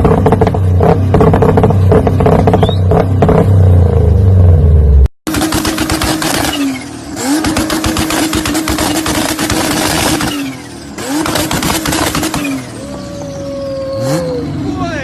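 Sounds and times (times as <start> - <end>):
car engine revving: 0.0 - 14.8
exhaust crackling and popping: 5.3 - 6.6, 7.3 - 12.6.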